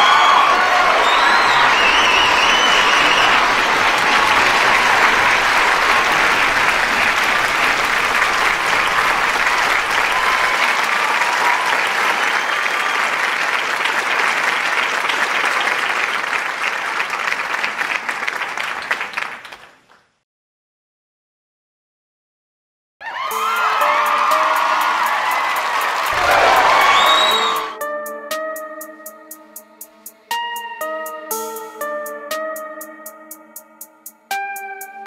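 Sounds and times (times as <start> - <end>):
people whooping: 0.0 - 14.4, 23.0 - 27.8
audience applauding: 0.0 - 20.0, 23.1 - 27.8.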